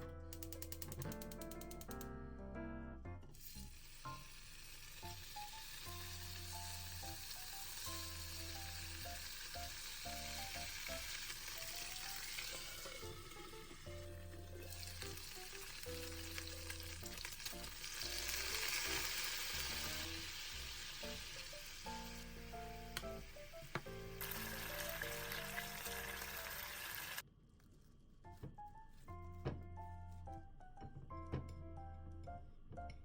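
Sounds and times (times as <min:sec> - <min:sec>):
food sizzling in frying pan: 0:03.4 - 0:27.2.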